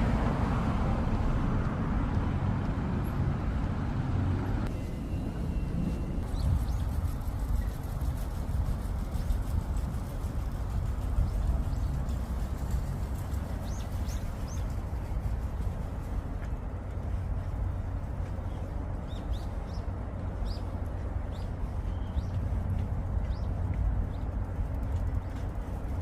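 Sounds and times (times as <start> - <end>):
steady low rumble: 0.0 - 26.0
small birds chirping: 13.2 - 14.8, 18.3 - 24.3.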